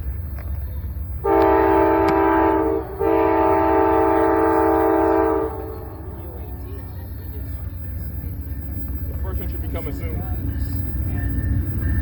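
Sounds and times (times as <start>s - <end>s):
low rumble of train: 0.0s - 12.0s
locomotive air horn blasts: 1.2s - 6.6s.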